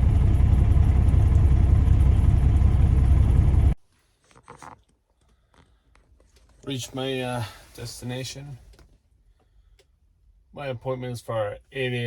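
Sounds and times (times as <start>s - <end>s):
truck engine and road noise: 0.0s - 4.9s.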